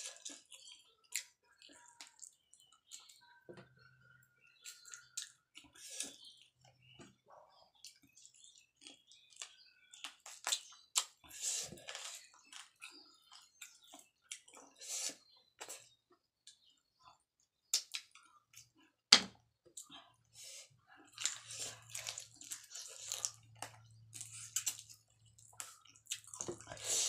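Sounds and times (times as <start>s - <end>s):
person chewing wet mouth sounds: 7.8s - 16.6s, 21.1s - 27.0s.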